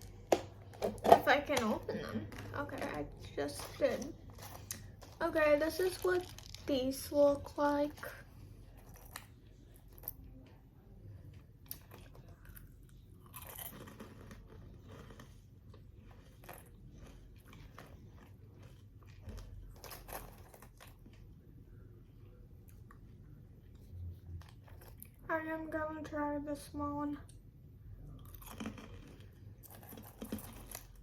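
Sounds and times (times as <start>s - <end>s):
crunching and chewing candy: 0.0s - 25.3s, 27.9s - 31.0s.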